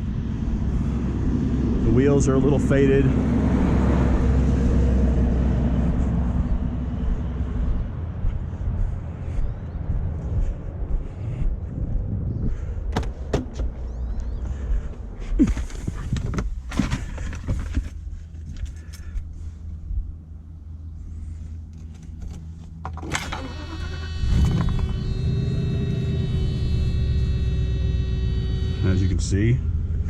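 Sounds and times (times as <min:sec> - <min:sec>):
car door clicks and knocks: 0:12.9 - 0:13.8
car engine cranking and running: 0:12.9 - 0:19.1, 0:21.7 - 0:29.1.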